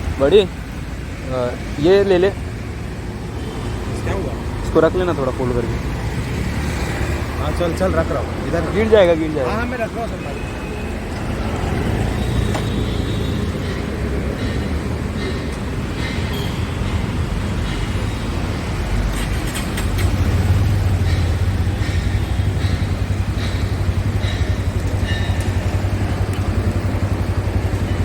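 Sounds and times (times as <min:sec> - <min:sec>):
road traffic noise: 0:00.0 - 0:28.0
vehicle engine running close by: 0:18.9 - 0:28.0.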